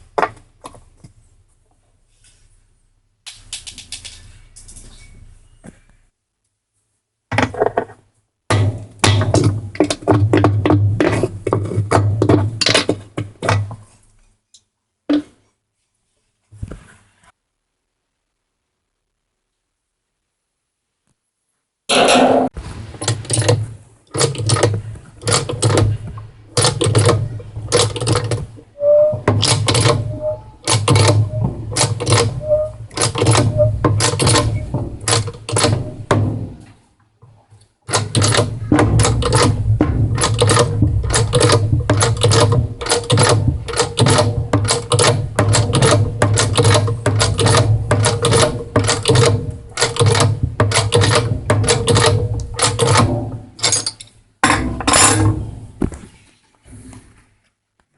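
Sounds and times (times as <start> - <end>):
tools clicking and rattling: 3.3 - 5.1, 23.0 - 36.3, 37.9 - 55.5.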